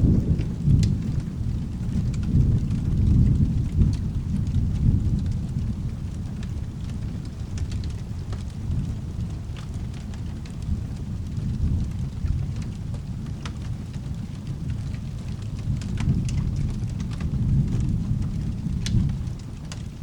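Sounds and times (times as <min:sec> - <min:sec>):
rain: 0:00.0 - 0:20.0
rolling thunder rumble: 0:00.0 - 0:20.0.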